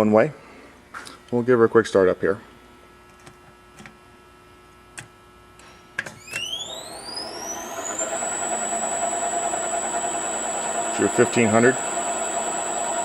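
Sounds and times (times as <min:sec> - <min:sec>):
grinder motor whine: 0:06.2 - 0:13.0
motor running hum: 0:06.2 - 0:13.0.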